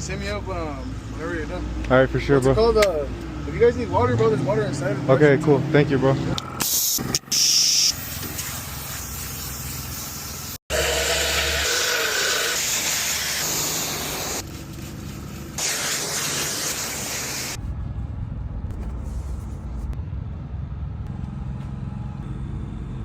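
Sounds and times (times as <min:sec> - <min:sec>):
pressurised spray hissing: 0:06.7 - 0:17.6
low steady rumble: 0:17.6 - 0:23.0.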